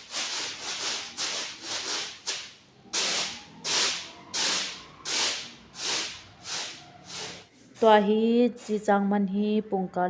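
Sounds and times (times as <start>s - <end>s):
rubbing or scraping strokes: 3.0s - 7.9s.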